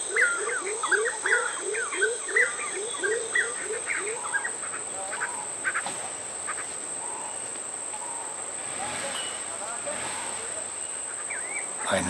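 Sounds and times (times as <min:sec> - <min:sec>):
bird quacking calls: 0:03.4 - 0:07.3
high-pitched insect drone: 0:08.0 - 0:12.0.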